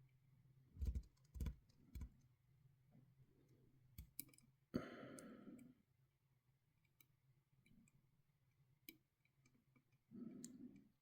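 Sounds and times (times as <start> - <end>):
person sighing: 4.8 - 5.6.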